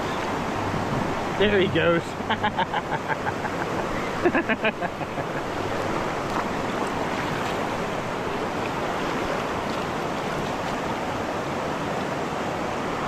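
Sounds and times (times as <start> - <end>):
river rushing through rapids: 0.0 - 13.0.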